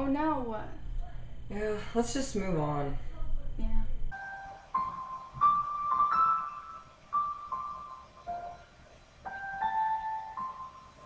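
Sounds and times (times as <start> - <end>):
slow piano melody: 4.1 - 11.0.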